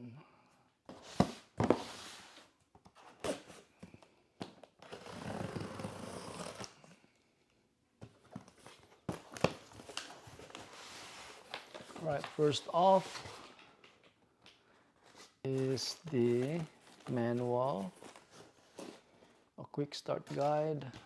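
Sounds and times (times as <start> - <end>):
packing material tearing and rustling: 15.1 - 19.4.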